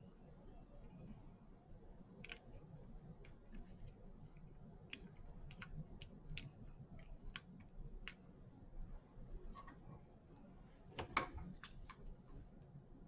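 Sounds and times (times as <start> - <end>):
low room hum: 0.0 - 13.0
small clicks and light taps: 2.1 - 8.4, 10.4 - 12.2.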